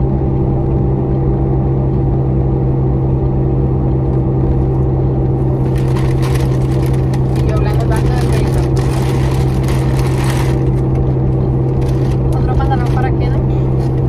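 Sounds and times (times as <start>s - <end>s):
car engine drone inside cabin: 0.0s - 14.0s
rustling crackles: 5.6s - 10.9s, 11.7s - 13.0s.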